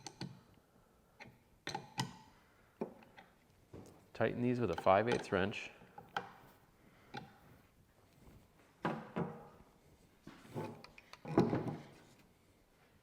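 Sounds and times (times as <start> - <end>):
wrench metallic clicks and knocks: 1.2 - 2.2.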